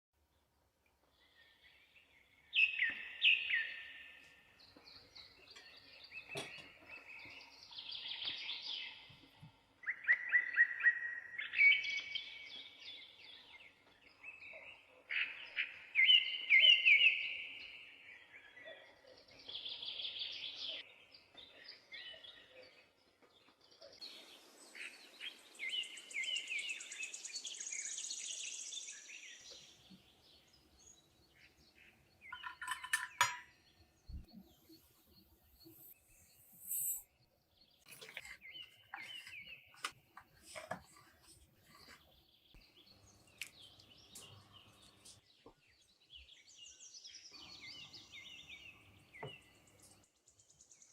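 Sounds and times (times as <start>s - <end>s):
bird chirps and trills: 24.1s - 39.8s.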